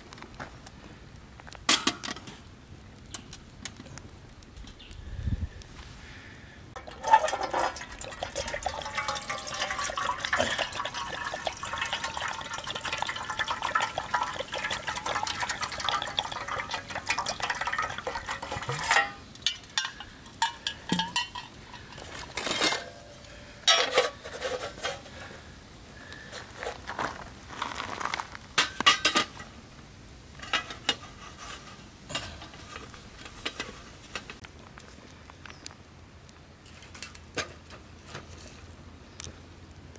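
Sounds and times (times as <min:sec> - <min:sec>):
water pouring into metal tin: 0:06.8 - 0:19.8.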